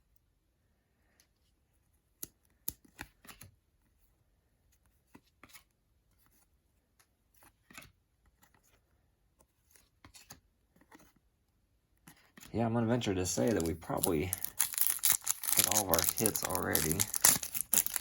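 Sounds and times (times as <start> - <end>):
trading cards flipping and snapping: 13.4 - 18.0.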